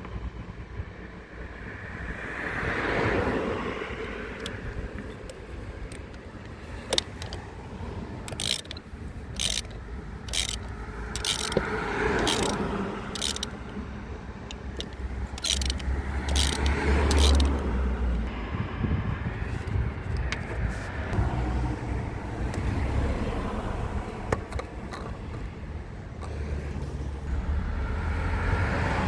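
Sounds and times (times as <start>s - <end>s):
ratchet-like rasping strokes: 4.0s - 13.8s, 14.5s - 18.3s.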